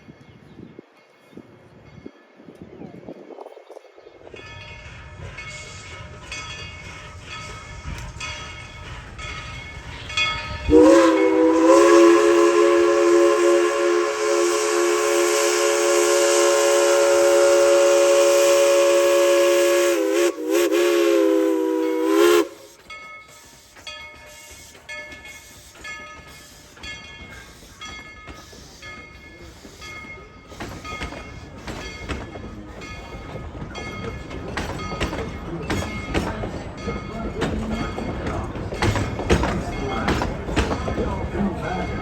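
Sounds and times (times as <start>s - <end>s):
train rumble: 0.0s - 42.0s
steam locomotive whistle: 10.6s - 23.8s.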